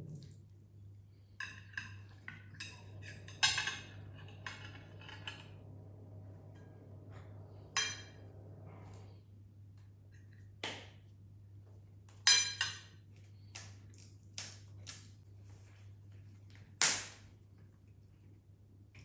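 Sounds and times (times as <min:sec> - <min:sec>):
low hum: 0:00.0 - 0:10.5
dishes and cutlery clinking: 0:01.4 - 0:05.6, 0:12.1 - 0:13.0.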